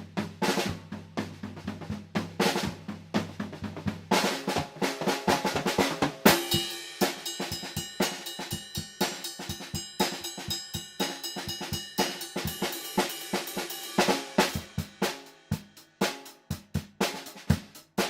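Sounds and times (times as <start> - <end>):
drum kit playing: 0.0 - 18.0
crash cymbal hit: 6.3 - 15.4.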